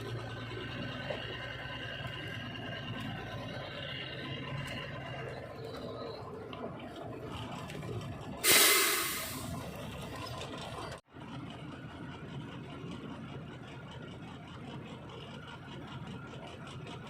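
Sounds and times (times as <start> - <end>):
truck engine running: 0.0 - 17.0
air brake hiss: 8.4 - 9.6.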